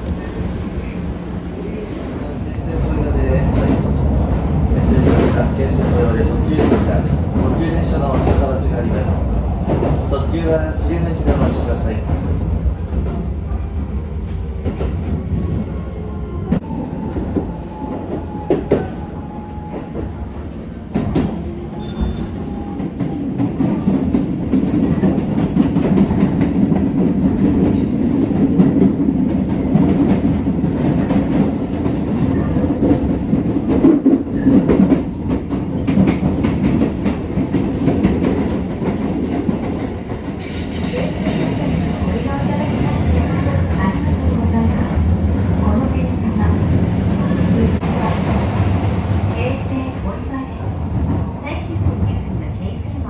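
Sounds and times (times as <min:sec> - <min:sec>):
train rumbling inside carriage: 0:00.0 - 0:53.0.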